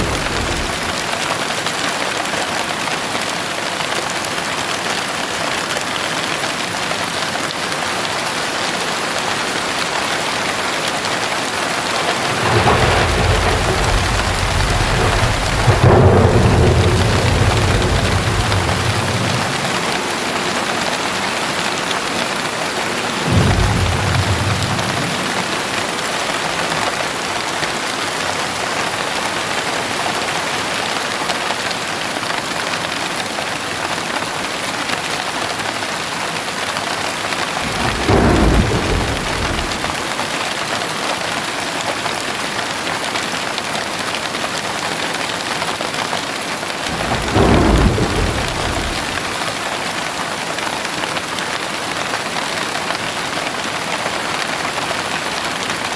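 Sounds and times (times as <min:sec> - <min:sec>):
low rolls of thunder: 0:00.0 - 0:01.3, 0:10.6 - 0:27.1, 0:37.5 - 0:40.2, 0:46.8 - 0:49.8
heavy rain hiss: 0:00.0 - 0:01.6, 0:08.9 - 0:28.1, 0:37.4 - 0:40.4, 0:46.8 - 0:50.0.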